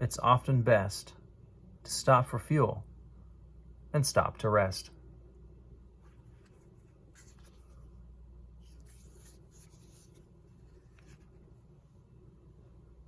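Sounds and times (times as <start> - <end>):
low steady hum: 0.0 - 13.0
book pages rustling: 6.0 - 8.0, 8.6 - 11.8.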